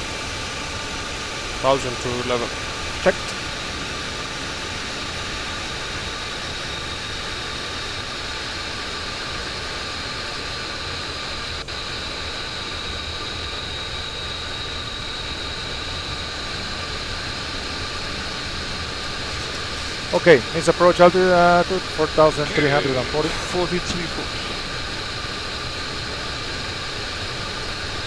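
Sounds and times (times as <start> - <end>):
rush of air and engine noise: 0.0 - 28.0
steady high-pitched tone: 11.7 - 26.6.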